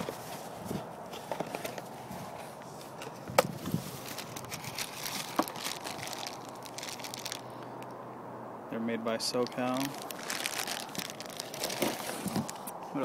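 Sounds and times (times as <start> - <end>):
packaging crinkling and rustling: 3.6 - 7.6, 9.4 - 12.7.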